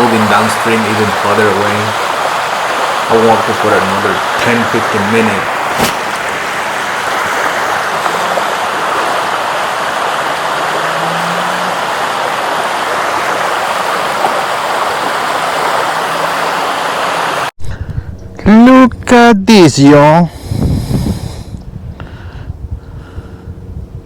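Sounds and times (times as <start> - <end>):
creek water running over rocks: 0.0 - 17.5.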